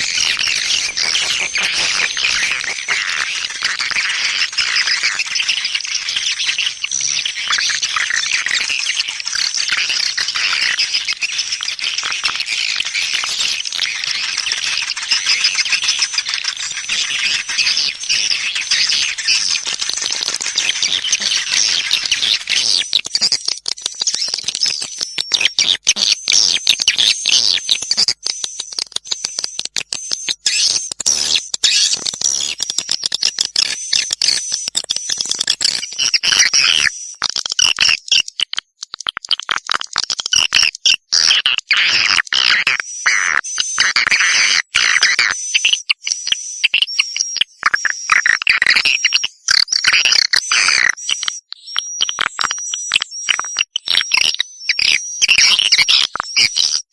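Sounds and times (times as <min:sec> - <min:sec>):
swiftlets chattering twitters: 0:00.0 - 0:36.8.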